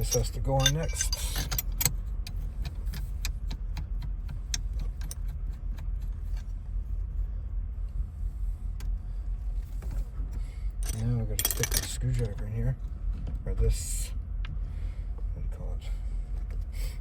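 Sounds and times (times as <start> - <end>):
small metal parts clinking: 0.0 - 2.0, 10.8 - 12.2
steady low rumble: 0.0 - 17.0.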